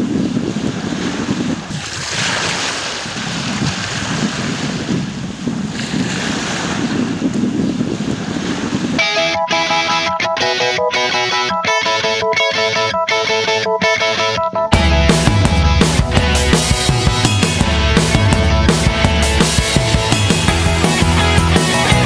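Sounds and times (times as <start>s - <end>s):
wind: 0.0s - 10.9s
surf: 0.0s - 22.0s
plucked guitar music: 9.0s - 22.0s.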